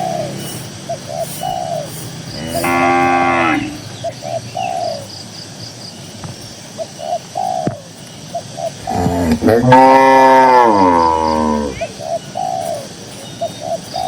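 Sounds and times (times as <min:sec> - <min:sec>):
dove cooing: 0:00.0 - 0:05.1, 0:06.8 - 0:14.0
cow mooing: 0:02.4 - 0:03.9, 0:08.9 - 0:11.8.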